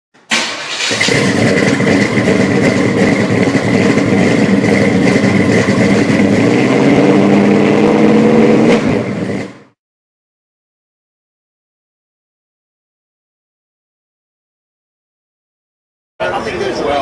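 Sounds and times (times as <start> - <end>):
car engine running: 0.6 - 9.7.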